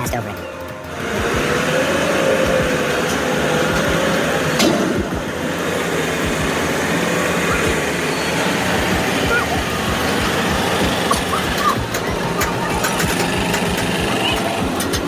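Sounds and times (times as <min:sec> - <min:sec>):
heavy vehicles running: 0:00.0 - 0:15.0.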